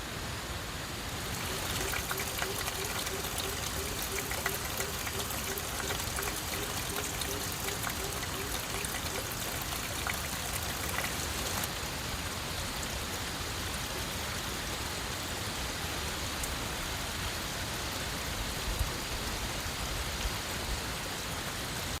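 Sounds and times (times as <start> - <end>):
falling water hiss: 1.1 - 12.9.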